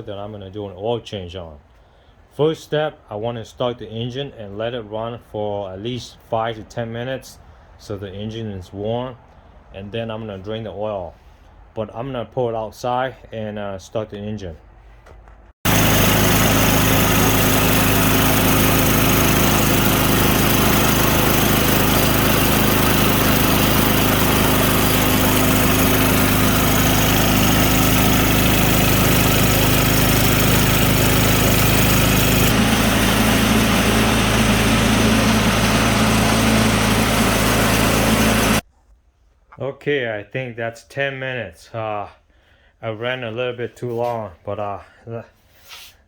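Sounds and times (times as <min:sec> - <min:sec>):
small engine running steadily: 0:15.6 - 0:38.6.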